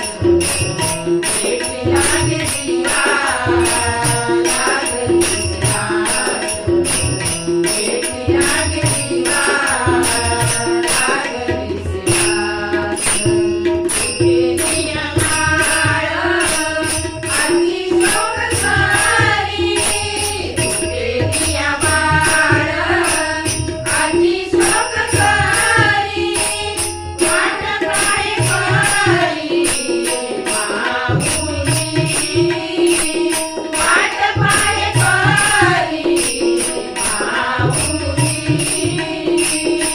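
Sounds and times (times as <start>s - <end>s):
harmonium melody: 0.0s - 39.9s
small hand cymbals: 0.0s - 39.9s
tabla drum beat: 0.0s - 39.9s.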